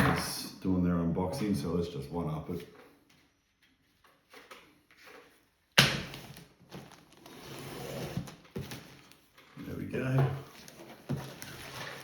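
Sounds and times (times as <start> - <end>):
cardboard scraping and rustling: 6.1 - 9.3, 10.4 - 12.0.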